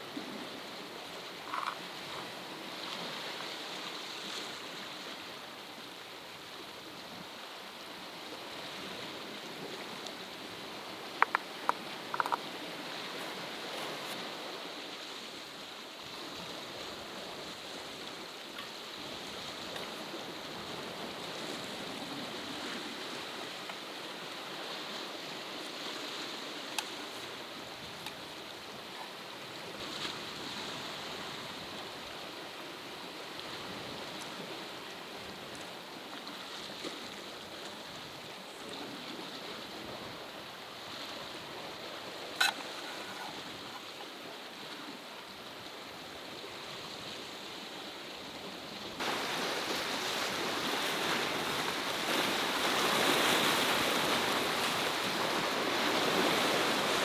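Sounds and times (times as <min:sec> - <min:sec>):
sea water washing over rocks: 0:49.0 - 0:57.0.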